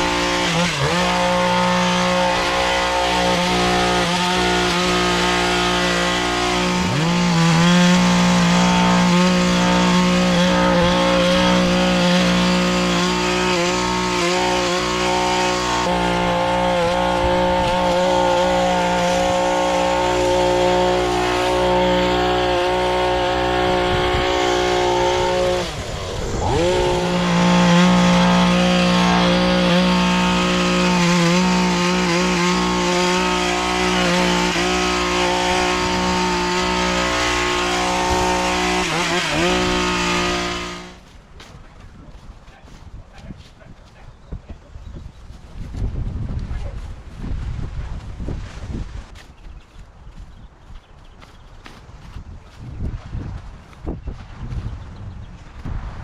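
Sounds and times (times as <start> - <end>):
small gas engine running: 0.0 - 41.1.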